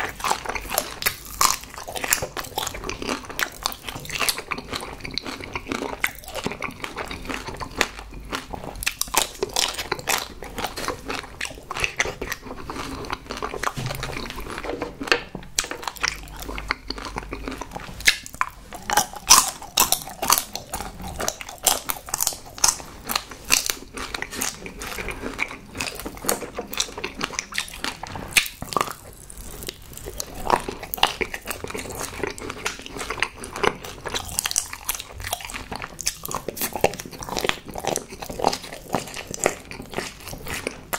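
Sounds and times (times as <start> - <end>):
person chewing and biting: 0.0 - 40.9
chocolate shell crackling: 18.1 - 40.9.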